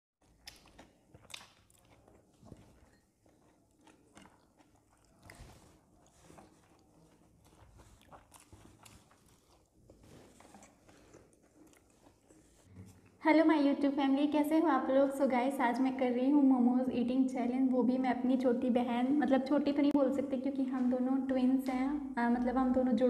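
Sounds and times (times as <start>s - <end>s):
faint chewing clicks: 0.2s - 13.2s.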